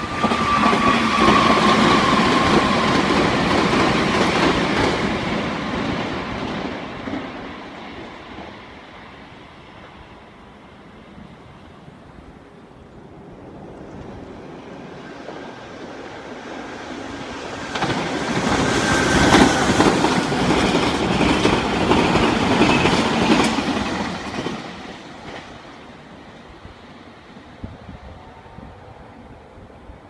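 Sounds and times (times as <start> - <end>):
electric train passing: 0.0 - 30.0.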